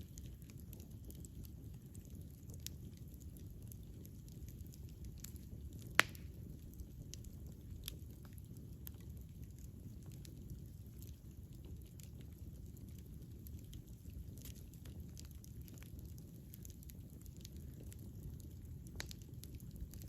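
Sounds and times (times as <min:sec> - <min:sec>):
wood fire burning and crackling: 0:00.0 - 0:20.0
loud sharp pop from fire: 0:06.0 - 0:06.4.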